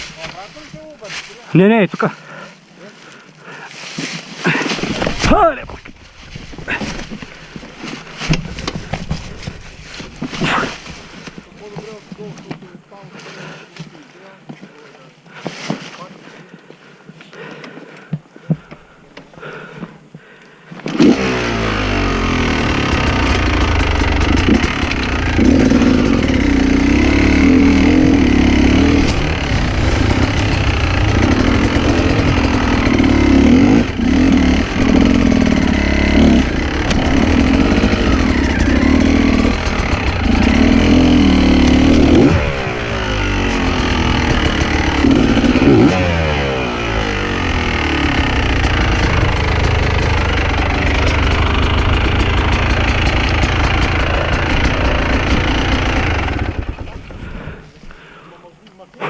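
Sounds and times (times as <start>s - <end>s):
dirt bike engine revving: 20.9s - 57.6s.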